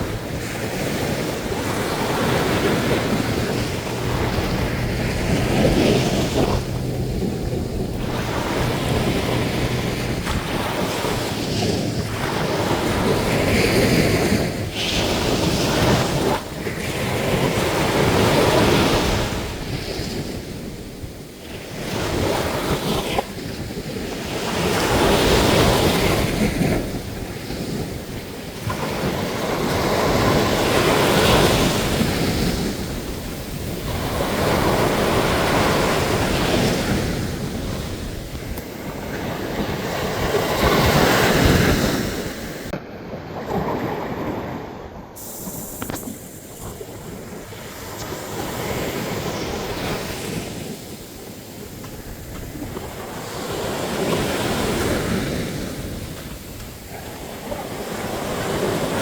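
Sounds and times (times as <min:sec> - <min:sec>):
waves breaking on beach: 0:00.0 - 0:59.0.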